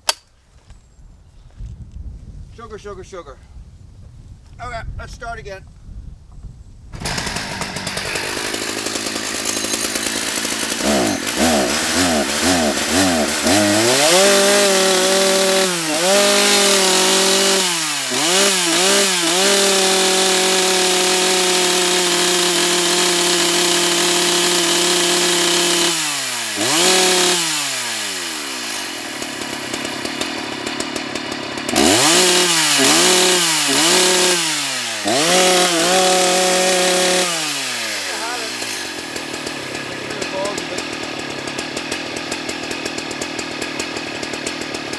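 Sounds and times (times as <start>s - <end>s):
chainsaw idling and revving: 7.0s - 44.9s.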